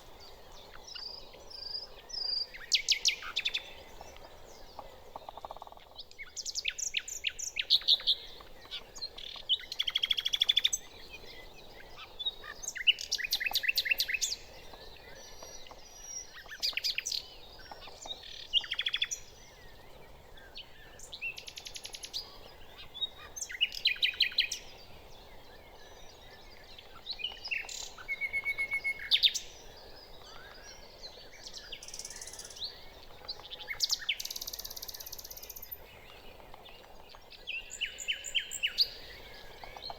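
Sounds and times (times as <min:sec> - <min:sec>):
nightingale singing: 0:20.6 - 0:39.9.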